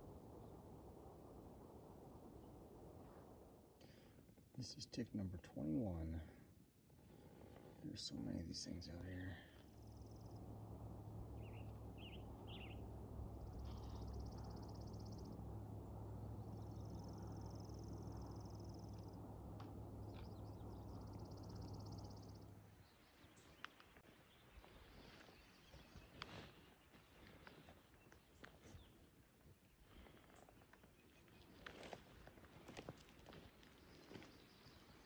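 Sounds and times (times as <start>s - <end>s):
low rumble: 8.0s - 23.7s
bird chirps: 11.4s - 12.8s, 13.4s - 15.4s
songbird trilling: 11.4s - 12.8s
light crackles: 23.1s - 25.3s.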